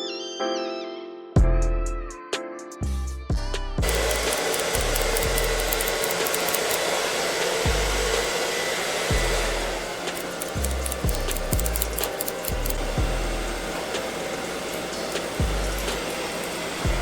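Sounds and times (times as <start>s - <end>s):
hair dryer blowing: 3.8s - 17.0s
music with deep bass beat: 11.1s - 13.7s, 15.4s - 16.0s.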